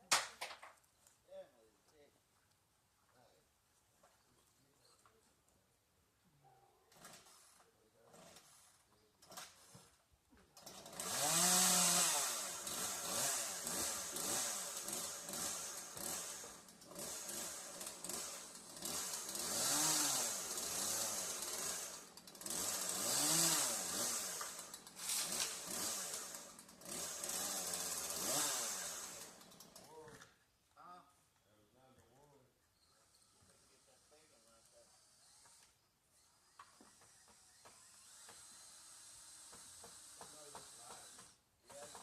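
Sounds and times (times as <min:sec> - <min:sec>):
chainsaw revving: 0:06.9 - 0:10.0, 0:10.6 - 0:30.2, 0:33.6 - 0:42.0.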